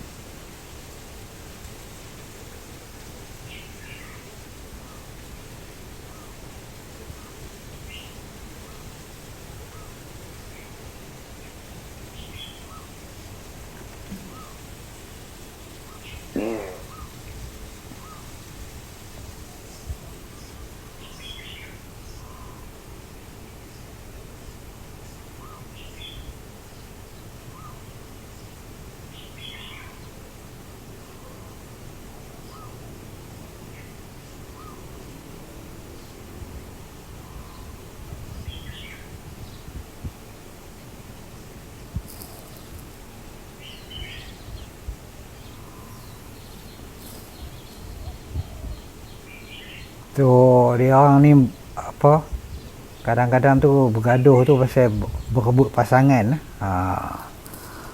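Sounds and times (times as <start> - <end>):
steady background hiss: 0.0 - 57.9
birds chirping: 3.4 - 9.0, 9.6 - 18.5, 19.3 - 22.8, 23.4 - 30.3, 32.4 - 33.0, 33.6 - 35.2, 37.0 - 57.9
lower bird notes: 13.7 - 18.4, 33.7 - 39.8, 41.4 - 57.9
bird chirping: 19.6 - 22.7, 43.5 - 57.9
low thumps: 55.0 - 55.8.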